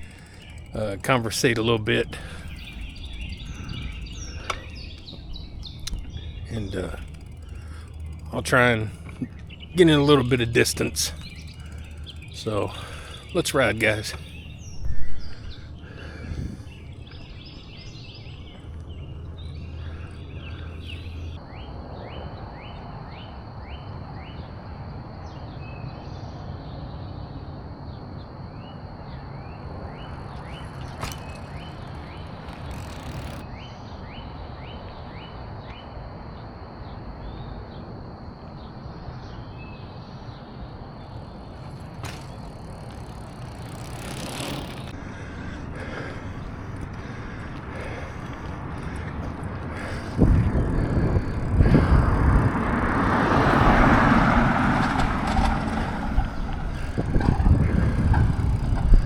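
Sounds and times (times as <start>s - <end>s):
quick rising chirps: 0.0s - 21.4s
wind and road noise: 0.0s - 59.0s.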